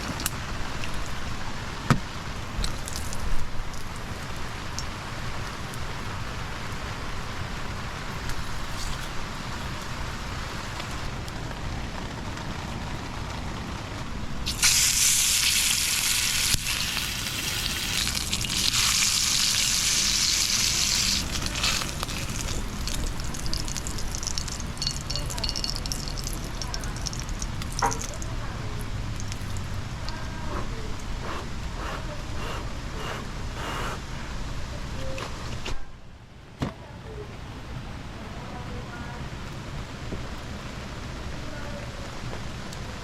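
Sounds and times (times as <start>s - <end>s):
faint crackles: 0.0s - 31.1s
loud sizzling hiss: 0.0s - 35.0s
low background noise: 0.0s - 43.0s.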